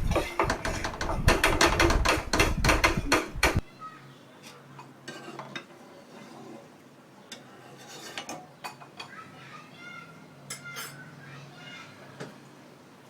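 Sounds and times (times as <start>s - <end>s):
spoon clinking and scraping pot: 0.0s - 3.4s, 4.4s - 6.7s, 7.3s - 9.2s, 10.5s - 11.1s.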